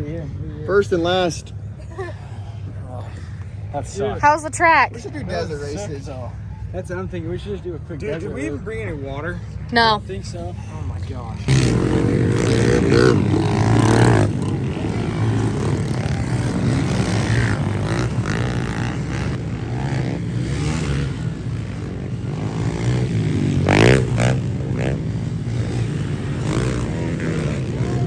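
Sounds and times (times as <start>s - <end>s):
pit bike engines running: 0.0s - 28.0s
bike engine revving: 11.4s - 28.0s.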